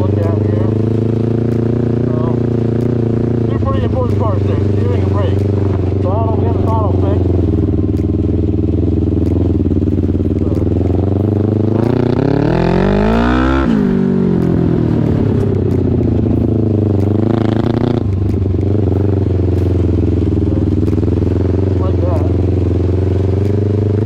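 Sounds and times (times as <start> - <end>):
engine running steadily: 0.0 - 24.0
small racing engine accelerating: 9.0 - 15.8.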